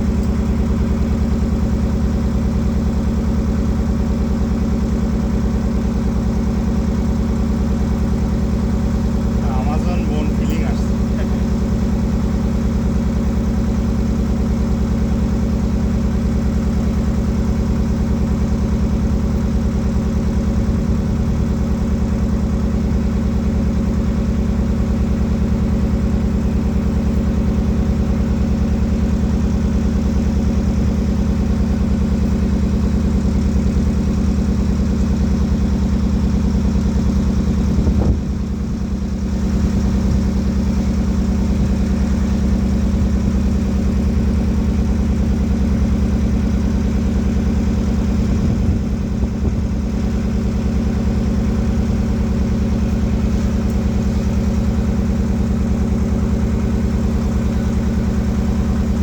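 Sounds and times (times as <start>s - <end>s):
boat engine running: 0.0s - 59.0s.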